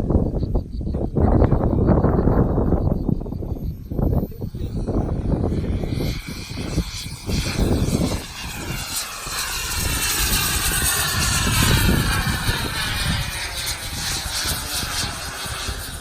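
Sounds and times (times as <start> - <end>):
model jet turbine whine: 0.0 - 16.0
wind gusts on microphone: 0.0 - 16.0.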